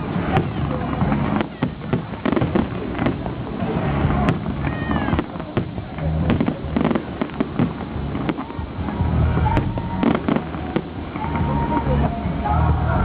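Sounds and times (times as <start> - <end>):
fireworks bangs and crackles: 0.0 - 13.0
low rumble: 0.0 - 13.0.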